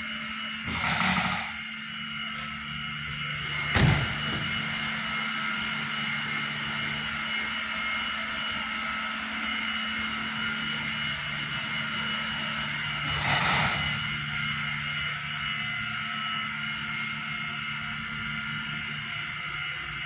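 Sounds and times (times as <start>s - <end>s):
mechanical hum: 0.0s - 20.0s.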